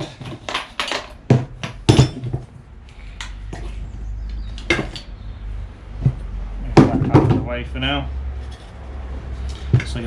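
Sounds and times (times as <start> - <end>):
metal parts knocking and clinking: 0.0 - 2.5, 4.5 - 5.1.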